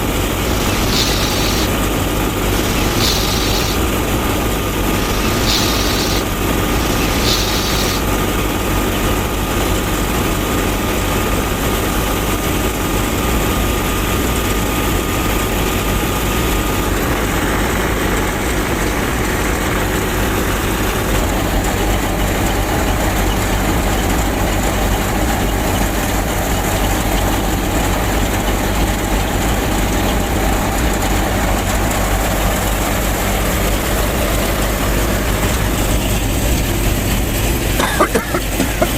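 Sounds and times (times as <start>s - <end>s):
thin whine: 0.0s - 8.6s
small motor droning: 0.0s - 9.1s.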